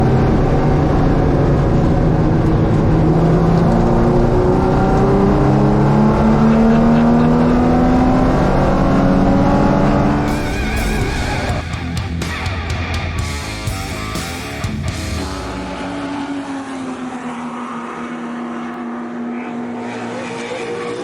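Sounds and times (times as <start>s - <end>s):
race car engine accelerating: 0.0s - 21.0s.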